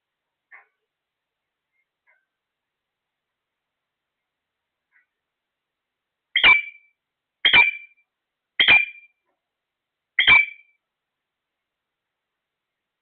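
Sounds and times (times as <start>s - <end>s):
parrot calling: 6.4s - 6.8s, 7.4s - 8.0s, 8.6s - 9.1s, 10.2s - 10.7s.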